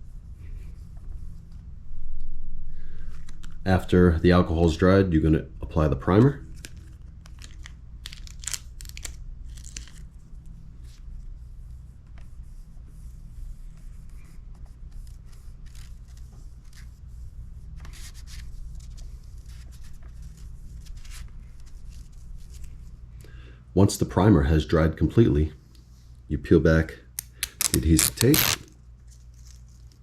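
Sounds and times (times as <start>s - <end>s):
steady low hum: 0.0s - 30.0s
scratchy rustles and rubs: 8.8s - 23.1s, 27.6s - 30.0s.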